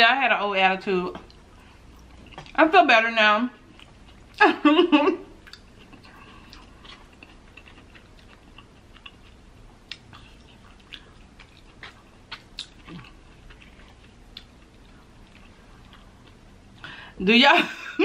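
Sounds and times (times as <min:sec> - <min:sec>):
person chewing: 0:01.2 - 0:02.6, 0:03.6 - 0:04.6, 0:05.3 - 0:16.9.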